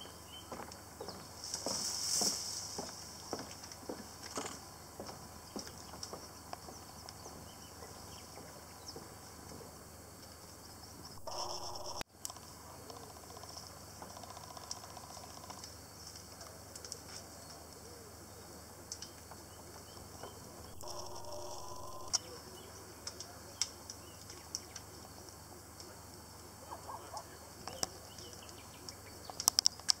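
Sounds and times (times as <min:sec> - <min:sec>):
birds chirping: 0:11.1 - 0:12.0, 0:19.1 - 0:25.0
steady hum: 0:11.2 - 0:12.0, 0:20.7 - 0:22.2.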